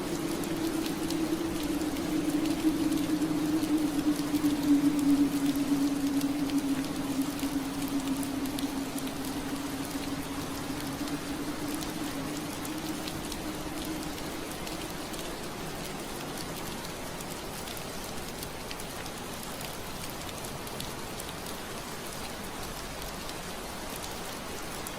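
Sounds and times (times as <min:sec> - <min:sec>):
low hum: 0:00.0 - 0:16.6
rain pattering on window glass: 0:00.0 - 0:24.9.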